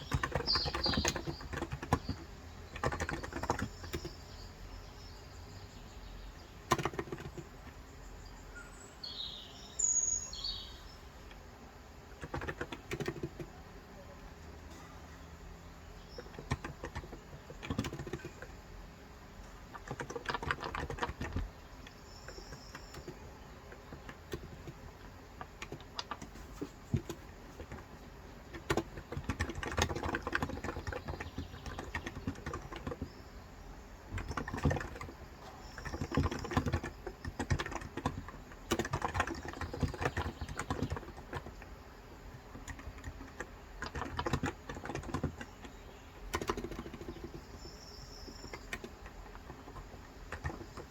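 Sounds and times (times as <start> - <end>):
keyboard typing clicks: 0.0 - 4.3, 6.6 - 7.8, 12.2 - 13.6, 16.0 - 18.6, 19.4 - 33.2, 34.1 - 41.7, 42.3 - 50.9.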